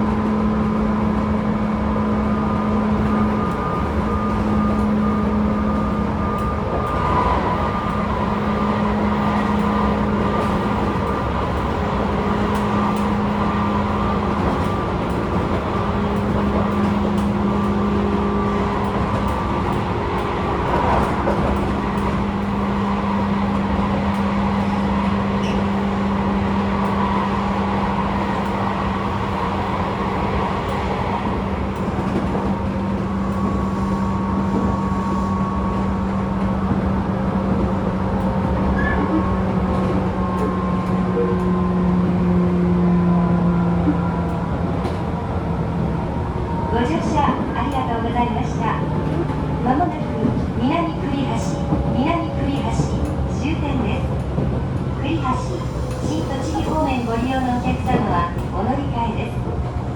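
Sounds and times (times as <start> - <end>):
train wheels rumbling on rails: 0.0 - 59.9
train motor humming: 0.2 - 59.9.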